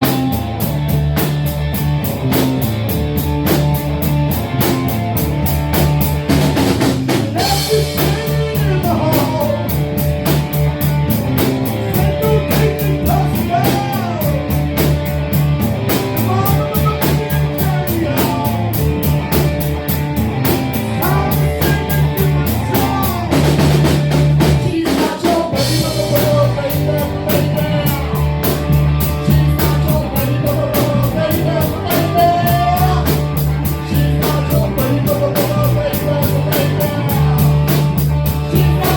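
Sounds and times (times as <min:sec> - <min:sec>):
bass line: 0:00.0 - 0:38.9
drum kit beat: 0:00.0 - 0:38.9
electric guitar: 0:00.0 - 0:38.9
person singing: 0:07.1 - 0:14.9, 0:15.9 - 0:19.6, 0:20.6 - 0:38.9.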